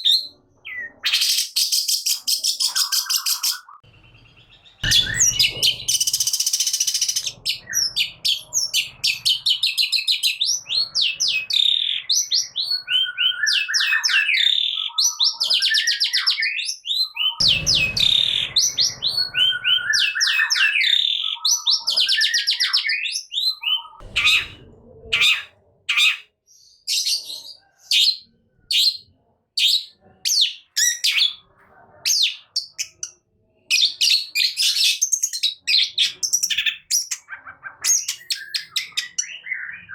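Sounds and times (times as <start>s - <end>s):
shrike singing trills and whistles: 0.0s - 24.6s
low bumps: 3.9s - 6.4s, 17.4s - 19.9s, 24.0s - 25.2s.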